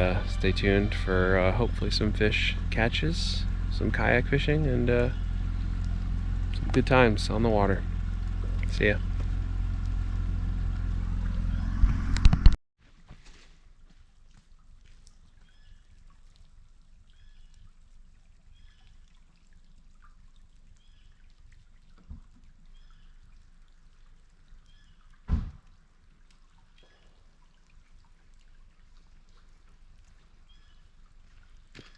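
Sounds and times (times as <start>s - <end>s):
water trickling and sloshing: 13.0s - 31.9s
loud thump: 25.3s - 25.6s.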